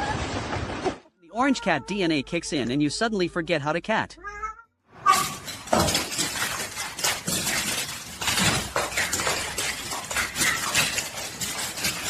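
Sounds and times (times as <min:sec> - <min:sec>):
hard objects clattering and clinking: 0:05.0 - 0:12.0.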